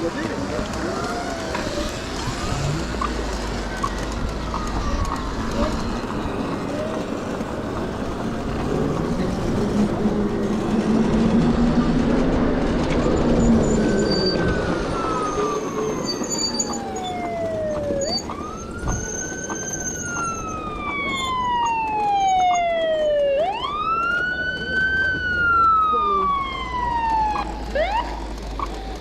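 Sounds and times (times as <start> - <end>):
emergency vehicle siren wailing: 0.0 - 29.0
traffic noise: 0.0 - 29.0.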